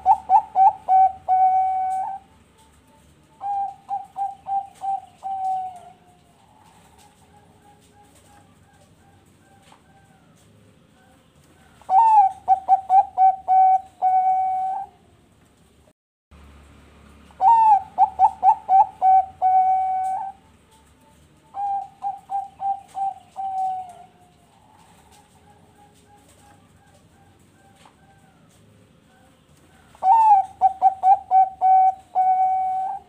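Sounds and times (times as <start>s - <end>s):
dove cooing: 0.0s - 15.4s, 17.3s - 33.0s.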